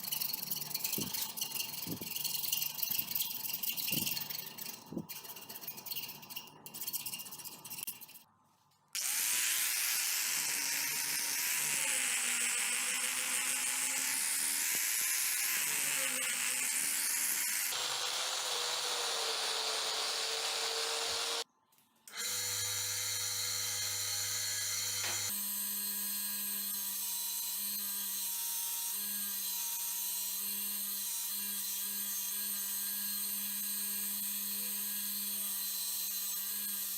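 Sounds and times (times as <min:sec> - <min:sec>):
power tool running: 0:09.0 - 0:21.4, 0:22.1 - 0:25.4.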